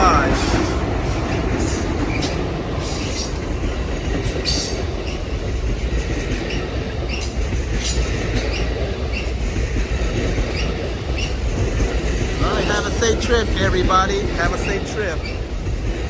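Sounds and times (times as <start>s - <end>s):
wheel squeals: 0.0s - 5.6s, 6.3s - 9.6s, 10.3s - 11.7s, 14.4s - 16.0s
train wheels rumbling on rails: 0.0s - 16.0s.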